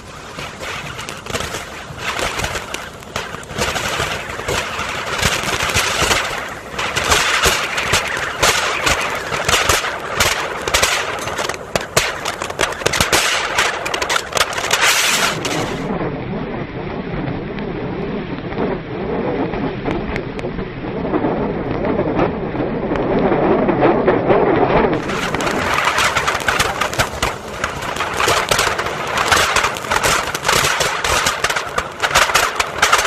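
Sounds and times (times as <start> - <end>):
firecrackers hissing and crackling: 0.0 - 16.0, 25.0 - 33.0.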